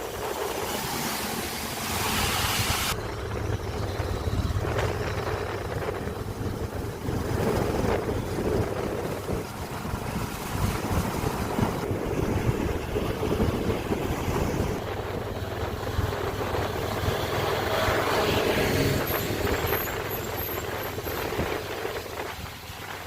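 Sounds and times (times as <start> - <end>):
engine and tyre rumble: 0.0 - 23.0
wind on microphone: 0.0 - 23.0.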